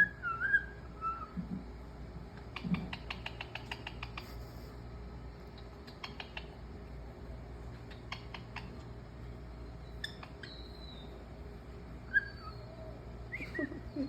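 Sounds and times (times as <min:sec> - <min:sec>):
parrot clicking: 0:02.5 - 0:04.3, 0:05.6 - 0:06.6.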